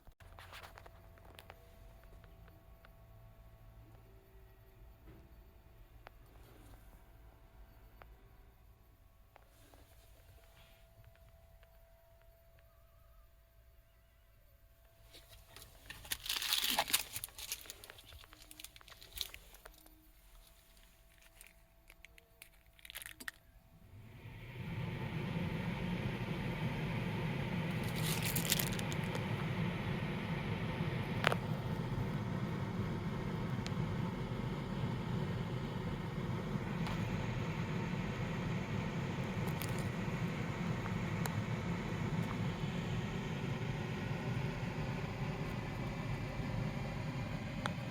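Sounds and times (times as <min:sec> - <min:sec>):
crinkling handling noise: 0:00.0 - 0:02.6, 0:14.9 - 0:23.6, 0:27.7 - 0:29.3
ventilation fan whirring: 0:14.6 - 0:47.9.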